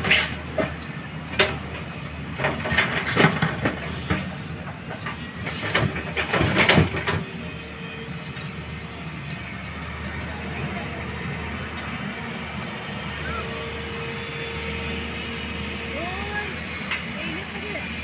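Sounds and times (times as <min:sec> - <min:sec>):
metal clanks and scrapes: 0:00.0 - 0:07.4
diesel engine droning: 0:00.0 - 0:18.0.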